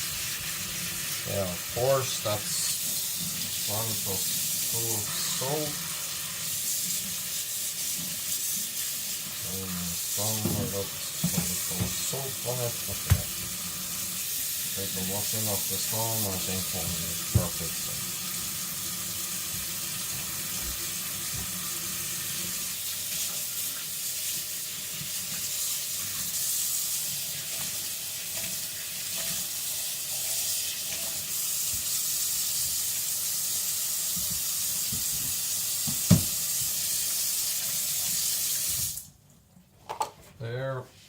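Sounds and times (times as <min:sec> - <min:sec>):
tap water running: 0:00.0 - 0:40.2
knock: 0:35.9 - 0:36.4.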